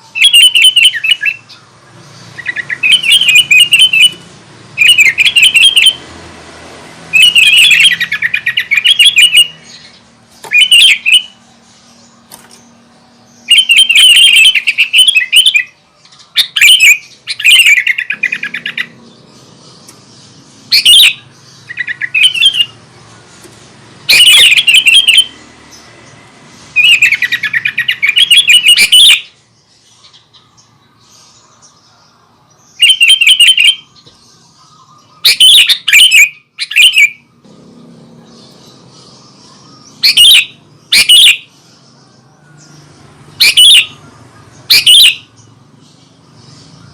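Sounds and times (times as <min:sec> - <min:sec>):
bulbul singing: 0:00.0 - 0:46.9.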